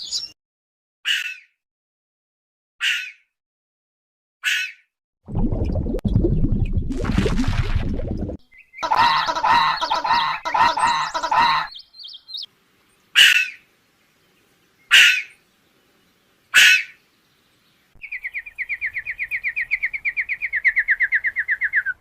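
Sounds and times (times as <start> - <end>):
rapid bird trill: 8.4 - 12.5, 18.0 - 22.0
harsh bird calls: 8.4 - 15.6, 16.5 - 17.1, 18.0 - 22.0.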